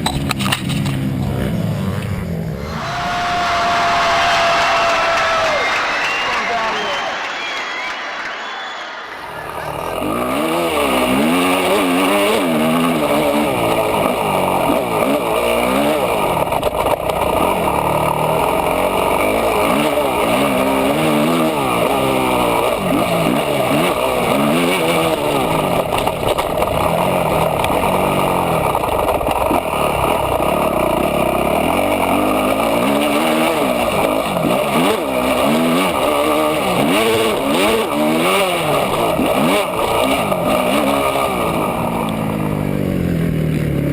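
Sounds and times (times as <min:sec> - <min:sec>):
motocross bike engine revving: 0:09.6 - 0:28.7, 0:29.4 - 0:43.9.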